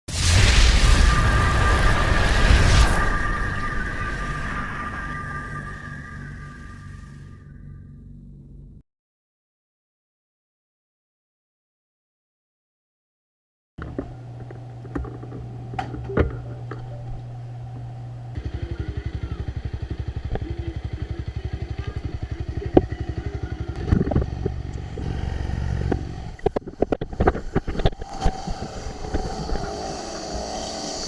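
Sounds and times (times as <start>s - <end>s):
motorcycle engine running: 16.2s - 31.0s.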